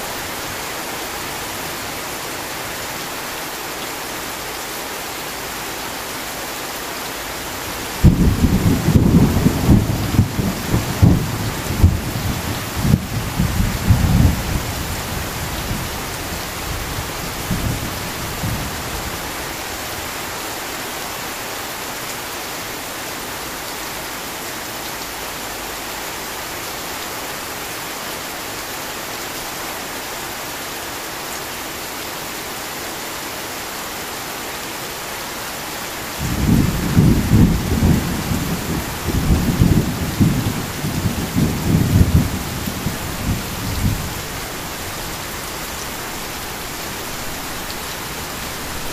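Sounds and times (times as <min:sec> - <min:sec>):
heavy rain: 0:00.0 - 0:48.9
rolling thunder: 0:08.0 - 0:14.8, 0:36.2 - 0:44.2.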